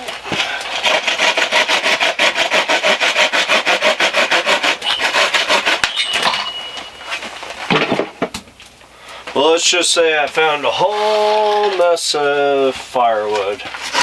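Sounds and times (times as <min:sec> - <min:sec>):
saw rasping through wood: 0:00.4 - 0:07.0.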